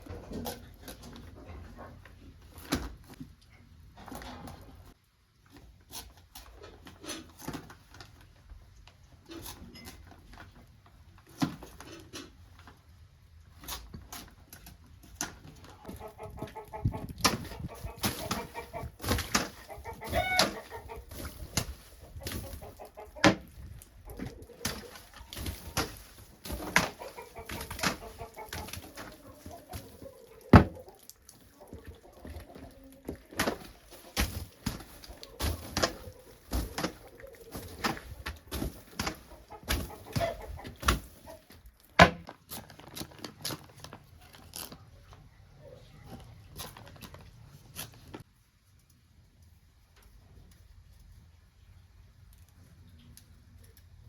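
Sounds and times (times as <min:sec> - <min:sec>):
chickens clucking: 0:15.6 - 0:41.6.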